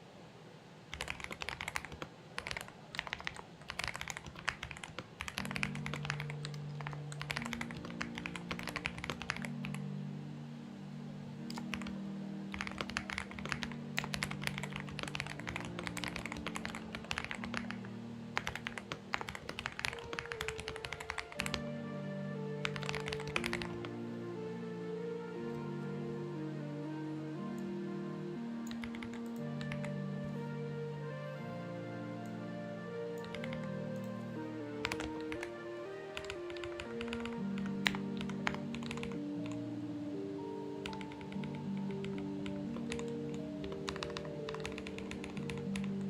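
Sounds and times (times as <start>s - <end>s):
mechanical keyboard typing: 0.9s - 9.8s, 11.4s - 17.8s, 18.4s - 21.7s, 22.6s - 23.9s, 28.6s - 30.0s, 33.1s - 34.1s, 34.8s - 39.6s, 40.8s - 46.0s
background music with low notes: 3.9s - 46.0s.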